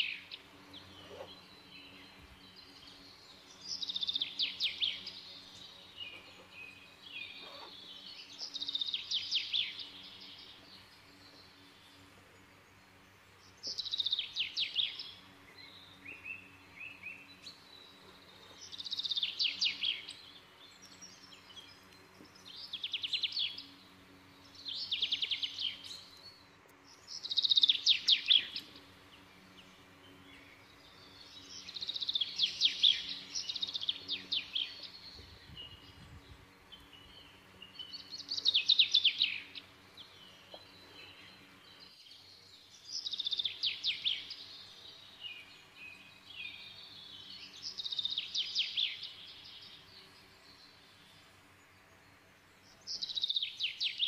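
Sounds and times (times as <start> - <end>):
songbird trilling: 0.0 - 10.4, 36.7 - 41.7.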